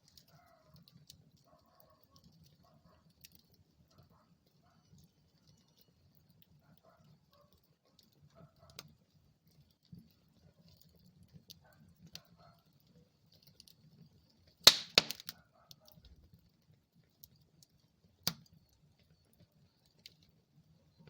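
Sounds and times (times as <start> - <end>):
wood fire crackling: 0.0 - 21.0
fire pops: 14.6 - 15.4, 18.2 - 18.6.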